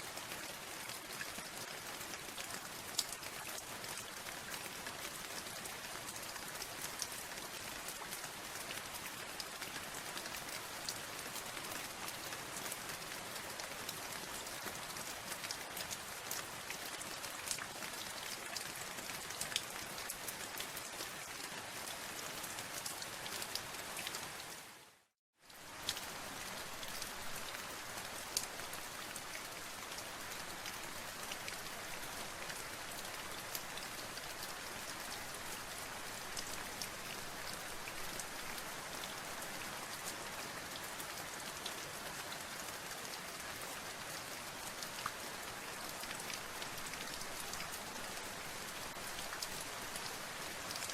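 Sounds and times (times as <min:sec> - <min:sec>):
steady rain hiss: 0:20.4 - 0:50.9.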